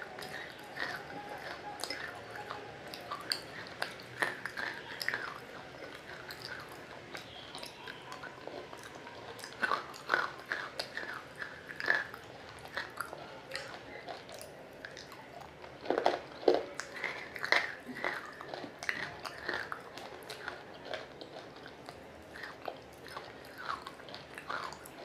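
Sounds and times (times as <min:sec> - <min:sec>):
wet crunchy chewing: 0:00.0 - 0:25.0.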